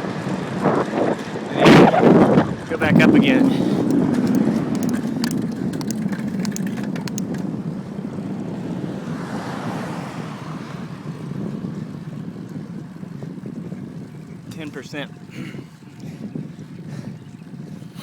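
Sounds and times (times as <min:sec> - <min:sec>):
bicycle road noise: 0:00.0 - 0:18.0
wind rushing over microphone: 0:00.0 - 0:18.0
faint clicks: 0:03.8 - 0:07.5.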